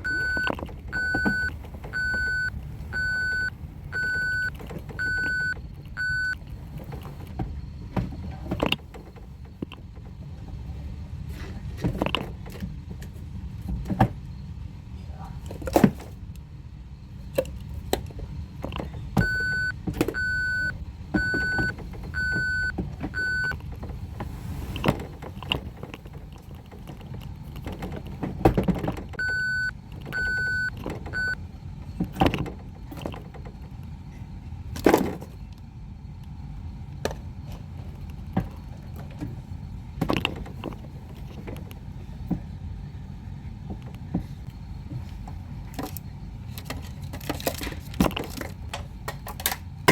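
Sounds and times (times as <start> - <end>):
toy electronic beeper: 0.0 - 6.4, 19.2 - 23.5, 29.2 - 31.4.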